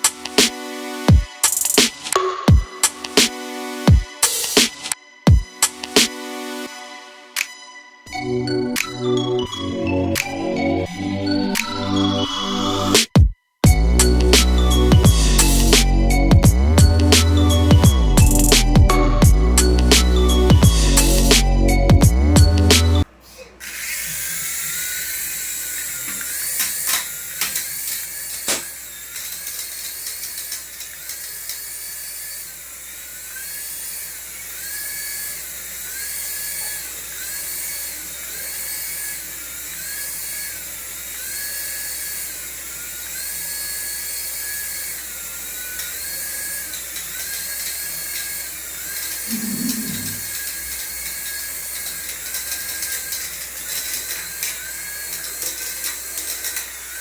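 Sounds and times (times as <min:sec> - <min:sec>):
toy electric motor whining: 0:13.6 - 0:57.0.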